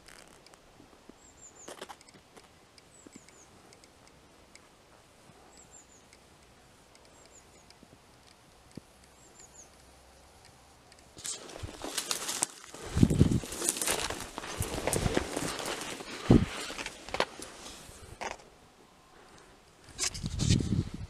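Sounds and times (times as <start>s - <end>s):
footsteps: 11.2s - 18.4s
rustling: 11.2s - 18.5s.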